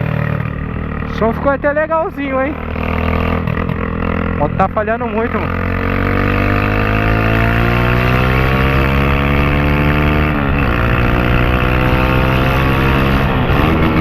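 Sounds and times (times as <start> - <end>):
motorcycle engine accelerating: 0.0 - 14.0
man talking: 1.1 - 2.6, 4.4 - 5.6.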